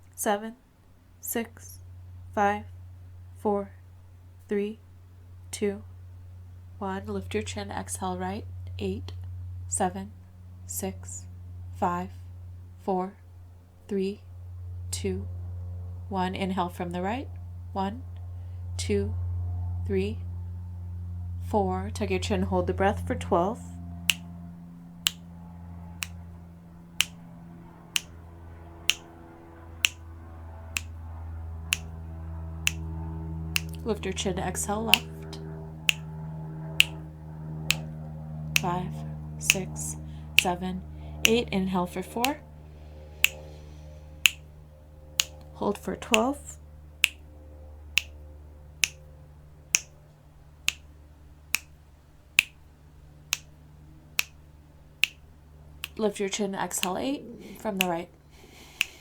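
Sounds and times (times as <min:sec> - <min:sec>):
steady low hum: 0:00.0 - 0:59.0
sharp clicks: 0:27.0 - 0:32.0, 0:32.7 - 0:33.0, 0:33.6 - 0:33.9, 0:34.9 - 0:37.0, 0:37.6 - 0:40.6, 0:43.2 - 0:44.5, 0:45.2 - 0:46.4, 0:50.7 - 0:50.9, 0:55.0 - 0:56.1, 0:56.8 - 0:59.0
short sharp ticks: 0:28.0 - 0:28.3, 0:29.8 - 0:30.1, 0:30.8 - 0:31.0, 0:33.6 - 0:33.8, 0:36.8 - 0:37.0, 0:37.7 - 0:37.9, 0:43.2 - 0:44.5, 0:56.8 - 0:59.0.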